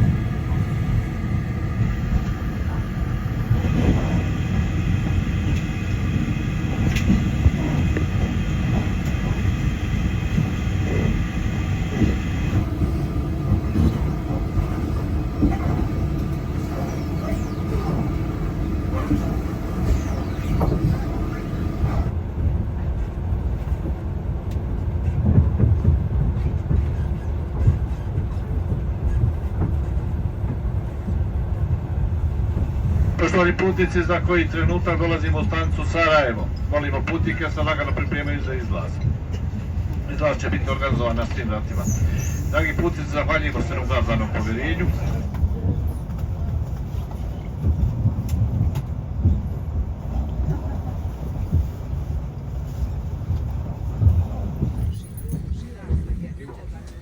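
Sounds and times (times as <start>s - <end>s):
thin whining tones: 0.0s - 22.1s
train rumbling on rails: 0.0s - 57.0s.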